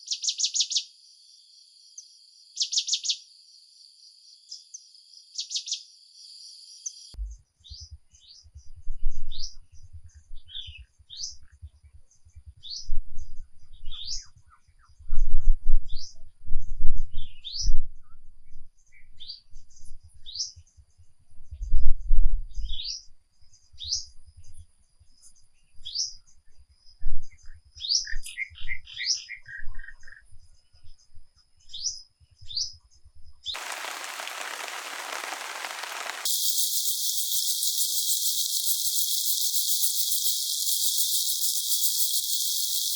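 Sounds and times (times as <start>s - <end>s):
rain hiss: 33.6s - 42.9s
songbirds chirping: 33.6s - 42.9s.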